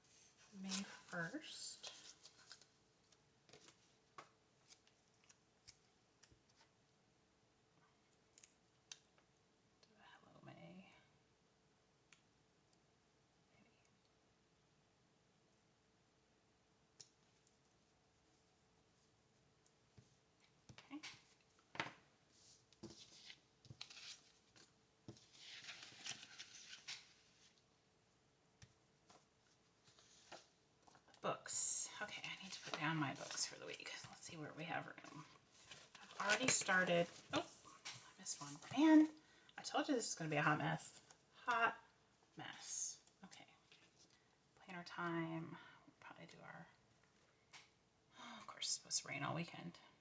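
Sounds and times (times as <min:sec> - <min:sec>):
paper rustling: 0:21.1 - 0:27.6, 0:35.5 - 0:38.9.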